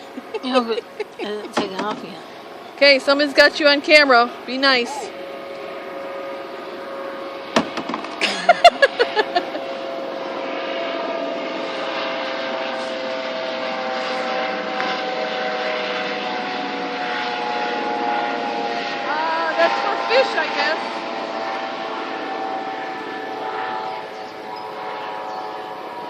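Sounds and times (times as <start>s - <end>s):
motor humming: 0.0s - 26.0s
knocks and clatter: 7.6s - 8.2s.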